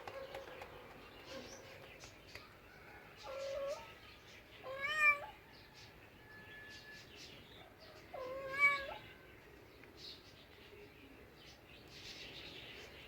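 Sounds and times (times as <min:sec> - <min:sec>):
cat meowing: 0:04.7 - 0:05.3, 0:08.2 - 0:09.0.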